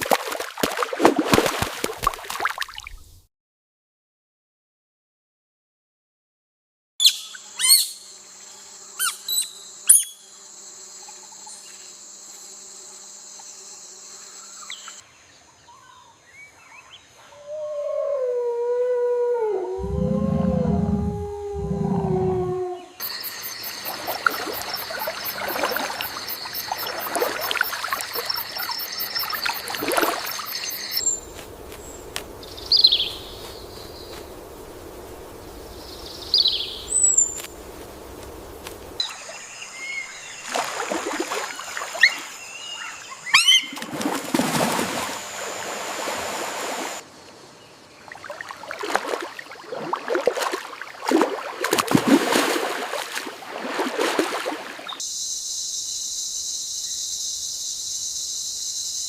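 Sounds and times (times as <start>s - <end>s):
water splashing: 0.0s - 3.1s, 23.1s - 39.4s, 40.2s - 42.4s, 43.6s - 47.0s, 48.1s - 55.0s
high insect drone: 7.2s - 15.2s, 19.7s - 43.2s, 54.9s - 59.0s.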